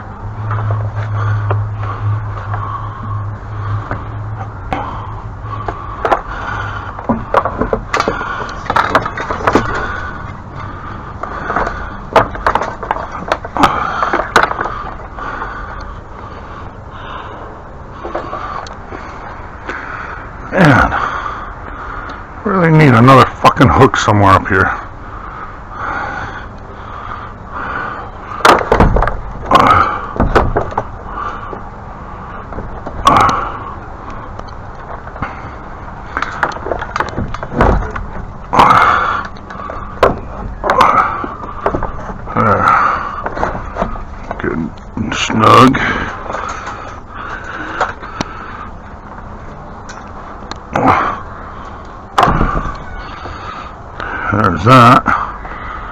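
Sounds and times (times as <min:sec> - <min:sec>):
steady low hum: 0:00.0 - 0:55.9
hard objects knocking and scraping: 0:05.6 - 0:06.3, 0:06.9 - 0:10.4, 0:11.2 - 0:15.1, 0:28.3 - 0:31.7, 0:36.1 - 0:44.4.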